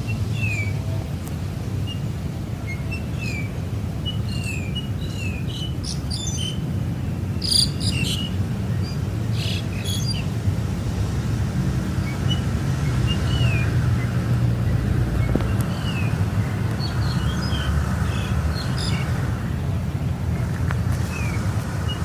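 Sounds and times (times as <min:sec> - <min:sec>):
small birds chirping: 0:01.8 - 0:10.4, 0:11.9 - 0:19.6.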